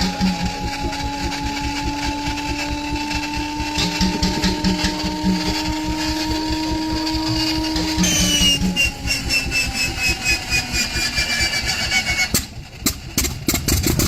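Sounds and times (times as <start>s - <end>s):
engine starter whine: 0.0s - 14.0s
mechanical clatter: 0.0s - 14.0s.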